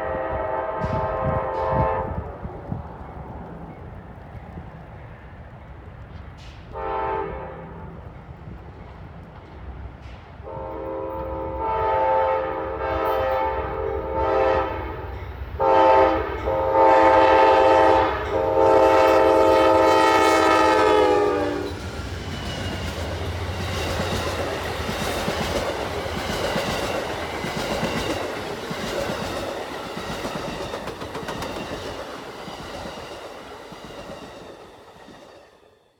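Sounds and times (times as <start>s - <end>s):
locomotive air horn blasts: 0.0s - 2.5s, 6.7s - 7.9s, 10.4s - 21.8s
train wheels clattering on rails: 0.7s - 7.0s, 8.0s - 12.0s, 16.2s - 35.6s.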